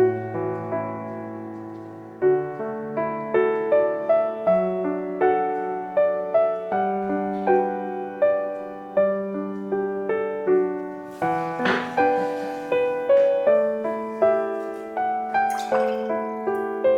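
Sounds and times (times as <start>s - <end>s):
gentle piano music: 0.0s - 16.9s.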